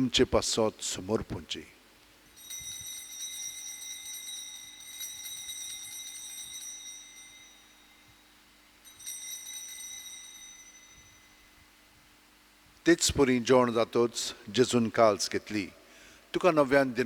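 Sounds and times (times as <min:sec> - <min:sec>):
altar bells ringing: 0:02.2 - 0:11.9.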